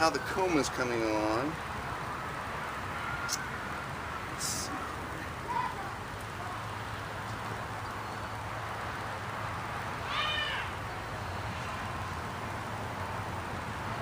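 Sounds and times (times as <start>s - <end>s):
short animal call: 10.0s - 10.8s.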